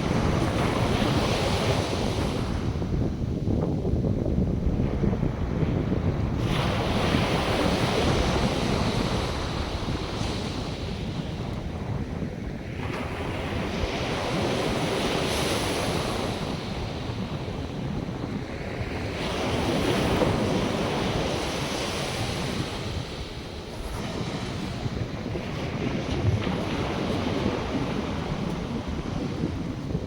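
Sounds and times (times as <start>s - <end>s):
wind buffeting microphone: 0.0s - 30.0s
surf breaking on beach: 6.2s - 30.0s.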